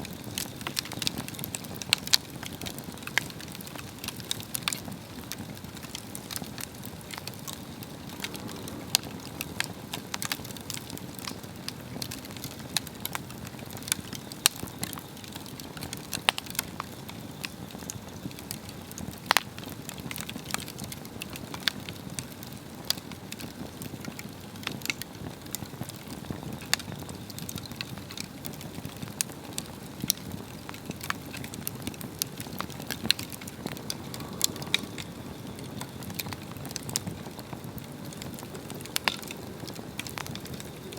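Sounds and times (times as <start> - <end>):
wood crackling and popping: 0.0 - 40.9
flame rushing: 0.2 - 14.0, 28.6 - 40.9.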